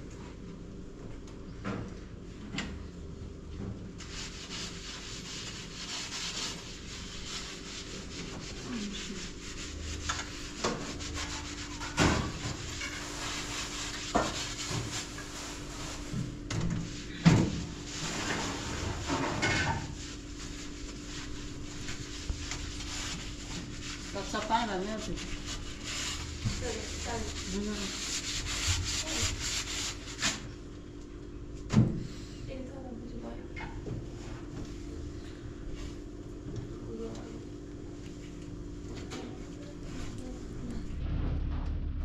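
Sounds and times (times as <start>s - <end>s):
steady low hum: 0.0s - 42.0s
rubbing and scraping: 4.0s - 16.1s, 17.5s - 30.4s.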